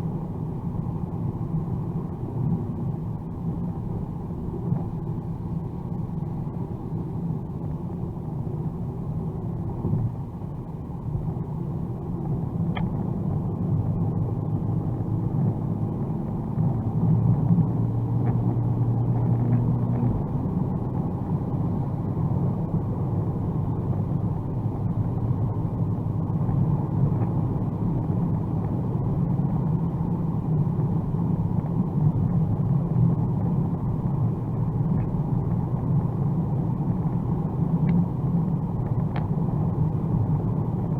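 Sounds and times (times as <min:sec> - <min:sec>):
car engine rumble: 0:00.0 - 0:40.9
tyre and road noise: 0:12.0 - 0:40.9.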